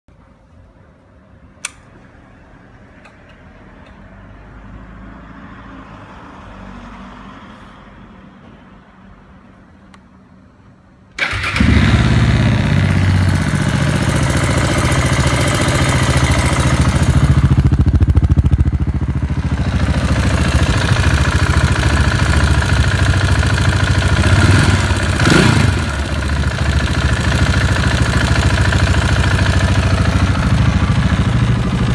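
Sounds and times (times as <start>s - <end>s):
motorcycle engine starting and idling: 11.1s - 31.9s.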